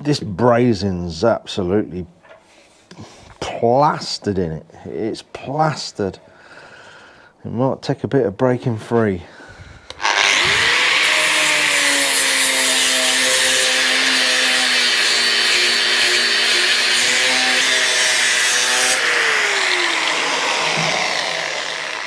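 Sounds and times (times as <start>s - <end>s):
grinder grinding metal: 9.9s - 22.0s.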